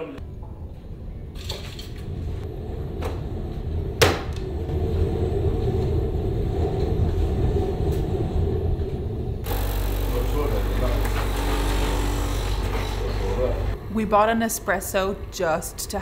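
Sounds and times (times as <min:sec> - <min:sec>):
espresso machine pump buzzing: 0:09.5 - 0:13.7.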